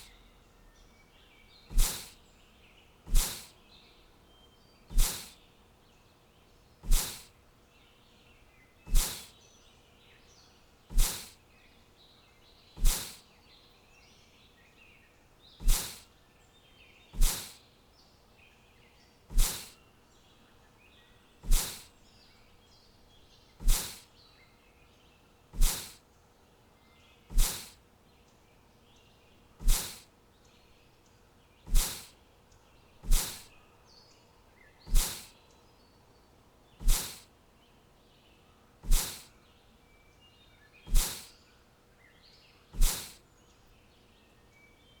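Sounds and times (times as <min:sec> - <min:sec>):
faint bird chirps: 0:00.0 - 0:45.0
sharp hissing hits: 0:01.7 - 0:02.1, 0:03.1 - 0:03.5, 0:04.9 - 0:05.3, 0:06.9 - 0:07.3, 0:08.9 - 0:09.3, 0:10.9 - 0:11.3, 0:12.8 - 0:13.2, 0:15.6 - 0:16.0, 0:17.2 - 0:17.6, 0:19.3 - 0:19.7, 0:21.4 - 0:21.9, 0:23.6 - 0:24.0, 0:25.6 - 0:26.0, 0:27.3 - 0:27.8, 0:29.6 - 0:30.0, 0:31.7 - 0:32.1, 0:33.0 - 0:33.5, 0:34.9 - 0:35.3, 0:36.8 - 0:37.3, 0:38.8 - 0:39.3, 0:40.9 - 0:41.3, 0:42.8 - 0:43.2.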